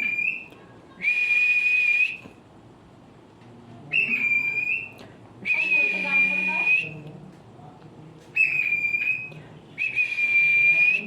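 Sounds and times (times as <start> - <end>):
cockatiel whistling: 8.4 - 10.9.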